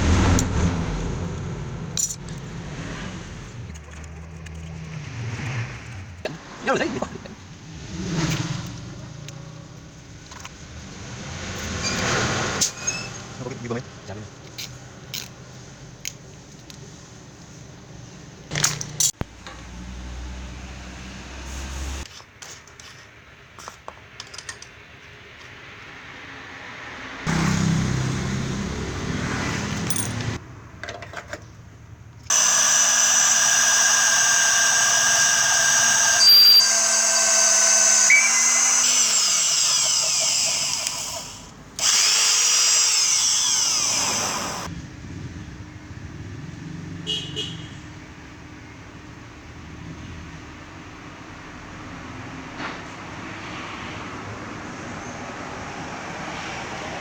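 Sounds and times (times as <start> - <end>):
electric drill motor whine: 32.3 - 44.7.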